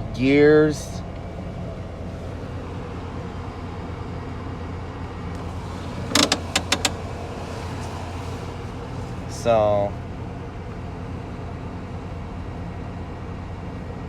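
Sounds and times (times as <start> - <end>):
pickup engine idling: 0.3 - 14.0
sharp clicks: 6.0 - 7.0.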